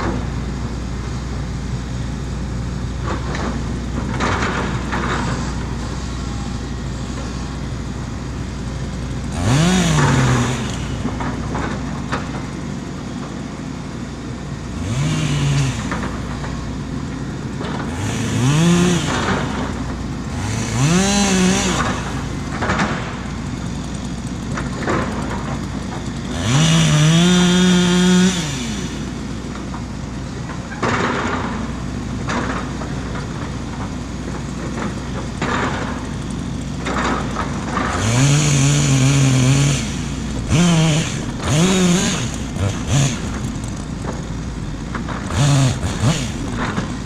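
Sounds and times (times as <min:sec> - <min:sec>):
excavator diesel engine under load: 0:00.0 - 0:47.0.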